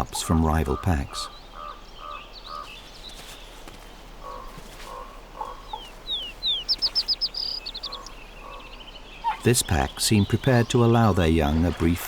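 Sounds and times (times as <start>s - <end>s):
low clucking bird notes: 0.0s - 12.0s
high bird chirps: 5.4s - 11.8s
descending bird whistles: 5.7s - 9.7s.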